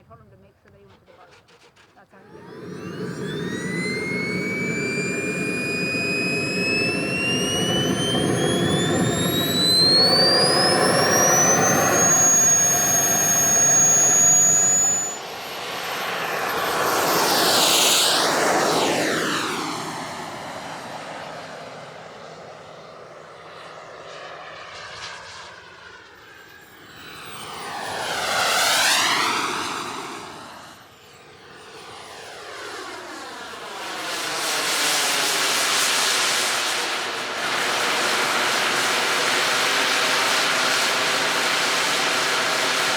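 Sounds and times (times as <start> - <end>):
jet turbine whine: 0.0 - 42.9
model jet passing by: 0.0 - 42.9.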